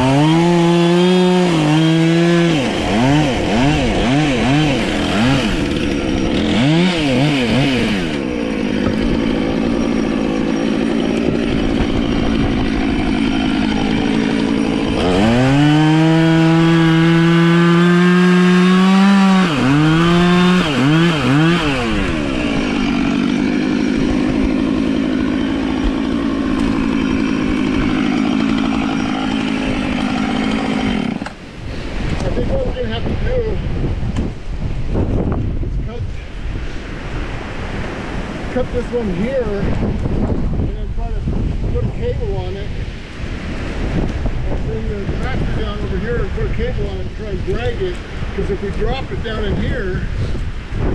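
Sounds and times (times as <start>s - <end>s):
chainsaw revving: 0.0s - 33.0s.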